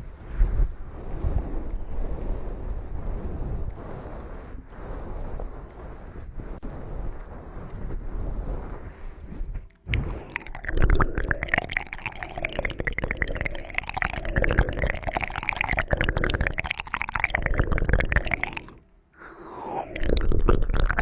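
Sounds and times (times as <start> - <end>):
wet tongue clicks and smacks: 9.9 - 18.8.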